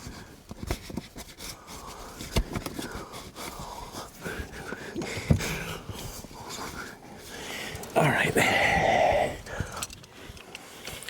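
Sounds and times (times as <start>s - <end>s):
man breathing hard: 1.5s - 11.0s.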